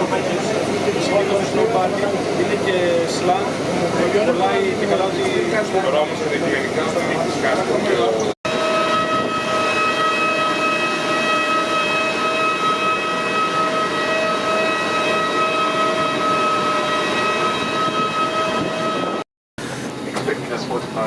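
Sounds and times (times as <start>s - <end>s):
airplane cabin noise: 0.0s - 21.0s
high whine: 8.5s - 19.3s.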